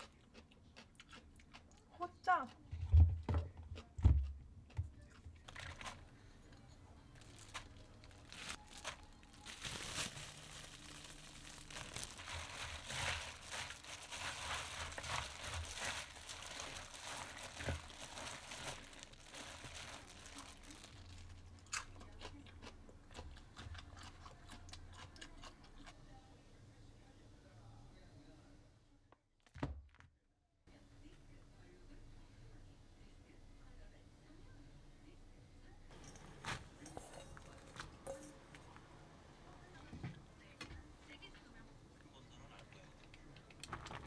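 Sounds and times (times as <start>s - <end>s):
crinkling and crunching handling: 4.7s - 25.9s, 35.9s - 38.9s, 42.5s - 44.0s.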